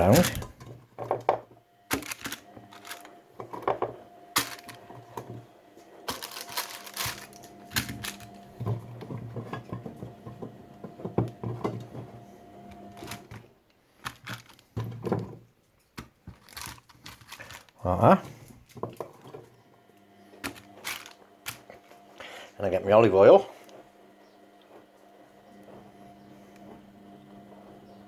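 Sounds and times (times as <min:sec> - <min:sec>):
steady hum: 0:01.4 - 0:14.9.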